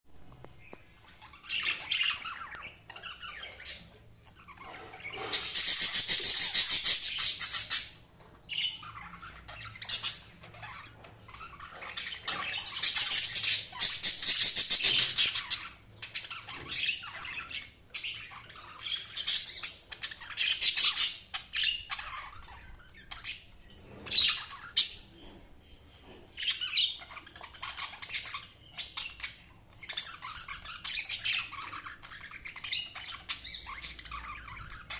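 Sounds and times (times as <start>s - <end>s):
budgerigars chirping and chattering: 0.2s - 34.9s
budgerigars squawking: 1.1s - 23.5s.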